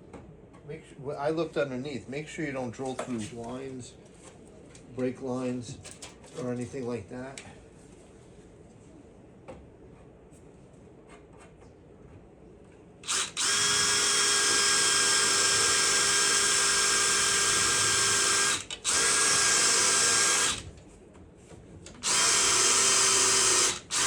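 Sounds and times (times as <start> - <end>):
electric drill drilling into metal: 13.0 - 20.7, 21.9 - 24.0.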